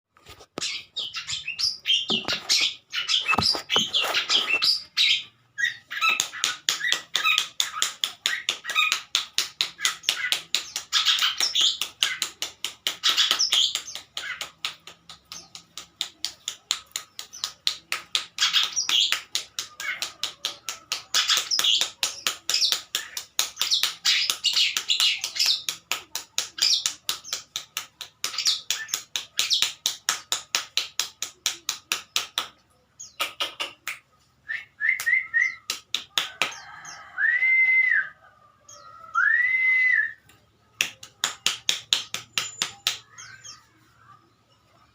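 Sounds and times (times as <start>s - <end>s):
bird chattering song: 0.6s - 25.8s, 32.0s - 34.2s, 41.4s - 44.9s.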